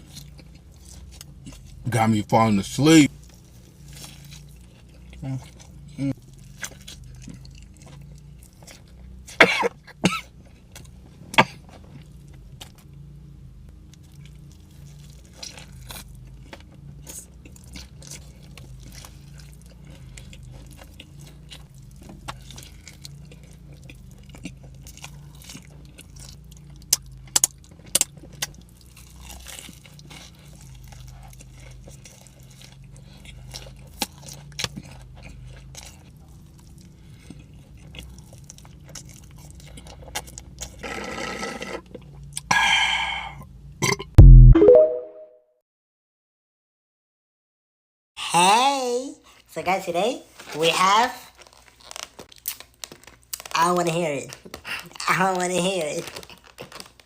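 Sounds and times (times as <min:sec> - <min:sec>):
person chewing crunchy food: 0:00.0 - 0:01.9, 0:03.1 - 0:13.0, 0:13.7 - 0:44.3, 0:51.2 - 0:53.7, 0:56.0 - 0:57.0
low steady hum: 0:00.0 - 0:40.9.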